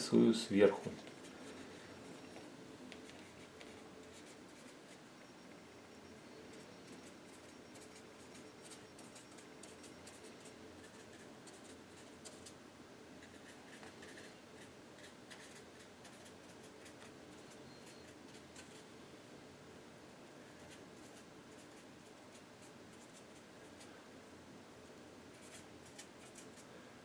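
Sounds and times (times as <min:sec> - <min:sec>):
low steady hum: 0:00.0 - 0:27.0
paintbrush scratching on canvas: 0:02.9 - 0:05.0, 0:06.5 - 0:12.6, 0:13.2 - 0:18.8.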